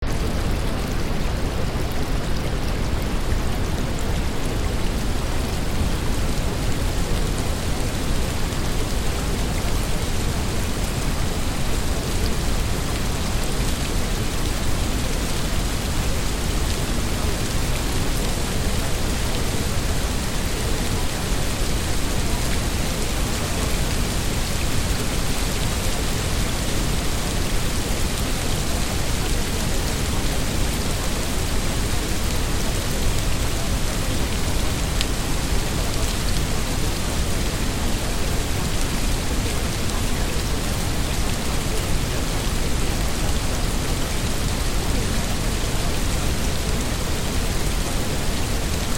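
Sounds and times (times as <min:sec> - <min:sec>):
steady rain: 0:00.0 - 0:48.9.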